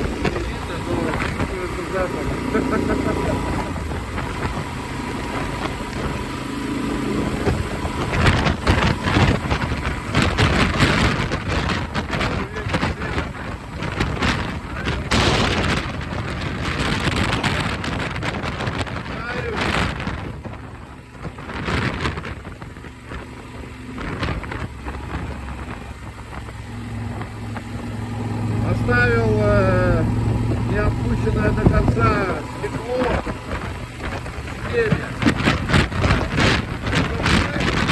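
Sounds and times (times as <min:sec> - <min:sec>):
motorcycle engine running: 0:00.0 - 0:37.9
wind buffeting microphone: 0:00.0 - 0:37.9.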